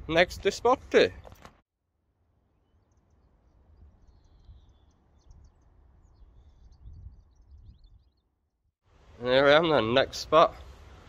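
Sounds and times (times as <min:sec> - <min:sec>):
birds chirping: 0:02.6 - 0:08.5.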